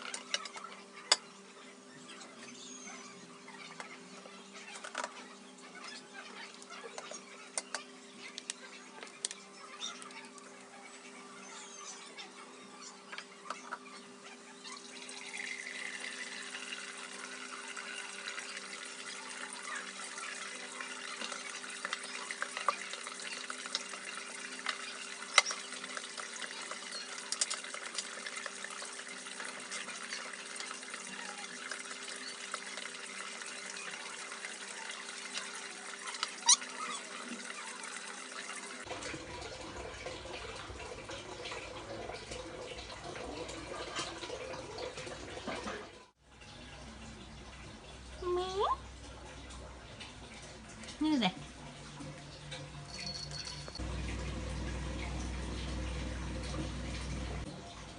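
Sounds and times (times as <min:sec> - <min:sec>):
tap water running into sink: 0:14.8 - 0:46.0, 0:51.7 - 0:57.9.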